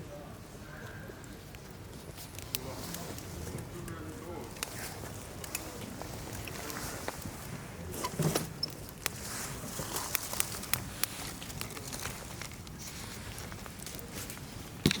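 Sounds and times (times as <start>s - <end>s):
campfire crackling and popping: 0.3s - 15.0s.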